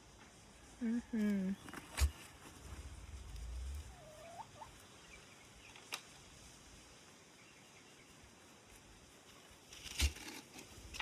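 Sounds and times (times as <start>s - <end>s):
fowl calling: 3.9s - 4.8s.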